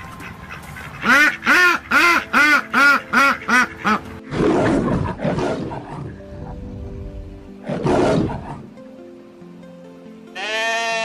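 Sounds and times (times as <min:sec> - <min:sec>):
ducks quacking: 0:00.0 - 0:05.8.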